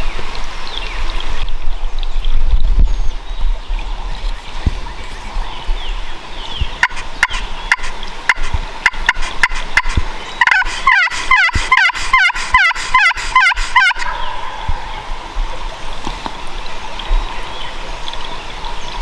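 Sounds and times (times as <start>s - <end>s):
turkey yelping: 6.8s - 15.2s.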